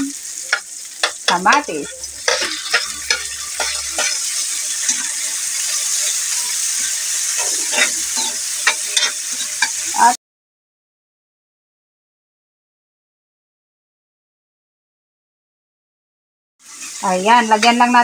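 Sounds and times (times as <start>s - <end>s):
food sizzling in a wok: 0.0s - 10.2s, 16.6s - 18.0s
utensil scraping and tapping pan: 0.5s - 5.1s, 7.4s - 9.8s.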